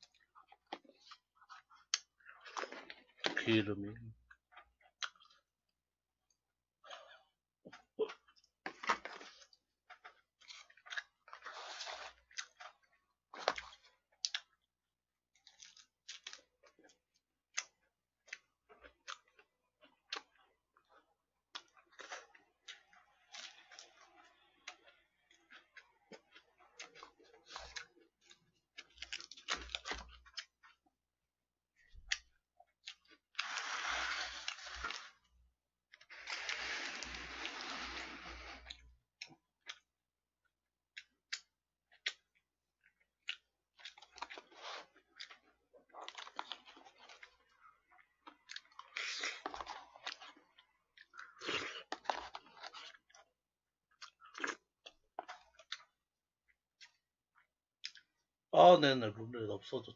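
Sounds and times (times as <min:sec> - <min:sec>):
chewing and crunching food: 0:00.0 - 0:58.5.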